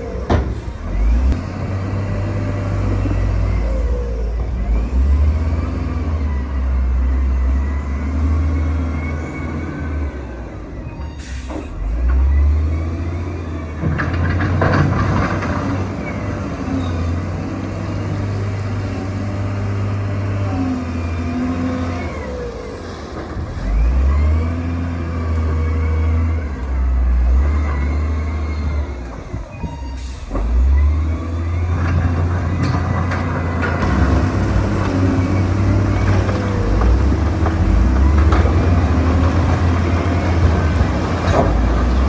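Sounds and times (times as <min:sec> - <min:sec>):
heavy diesel machine engine: 0:00.0 - 0:42.0
loud rush of noise: 0:33.8 - 0:40.0.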